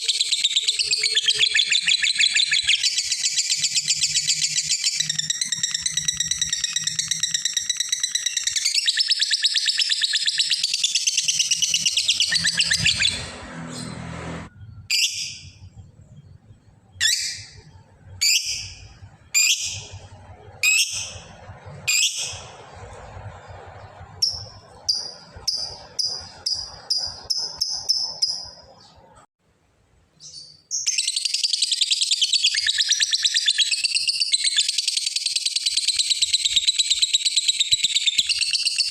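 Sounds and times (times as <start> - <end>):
bird chattering trill: 0.0 - 13.2, 24.2 - 28.8
bird sharp chirps: 0.0 - 22.6, 24.0 - 29.2, 30.2 - 38.9.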